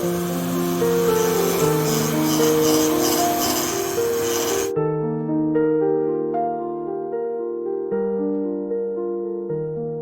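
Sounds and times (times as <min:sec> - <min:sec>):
soft keyboard chords: 0:04.7 - 0:10.0.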